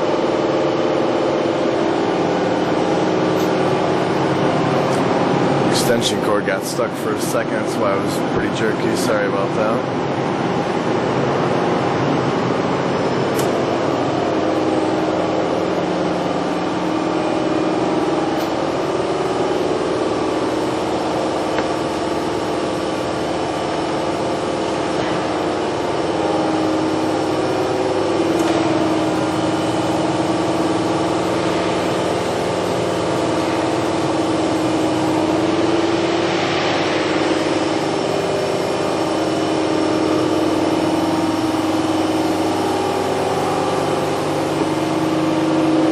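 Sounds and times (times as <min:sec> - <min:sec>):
machining center humming: 0:00.0 - 0:45.9.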